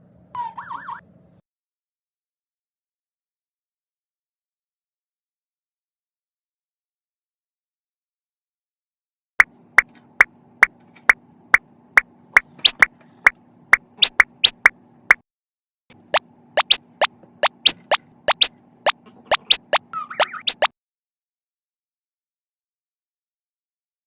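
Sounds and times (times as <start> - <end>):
rising pop sound effects: 12.4 - 12.9, 16.6 - 18.5, 19.3 - 20.7.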